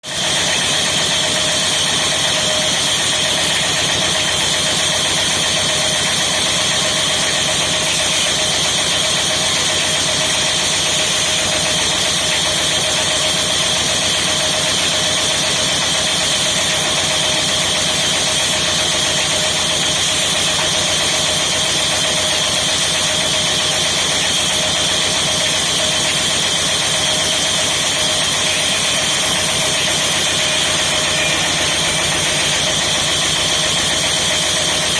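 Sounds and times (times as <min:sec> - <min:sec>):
electric saw humming and whining: 0:00.1 - 0:34.9.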